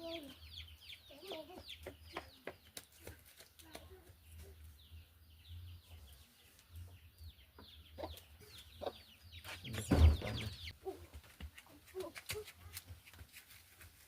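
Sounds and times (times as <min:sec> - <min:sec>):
chicks peeping: 0:00.0 - 0:03.2, 0:03.8 - 0:10.8.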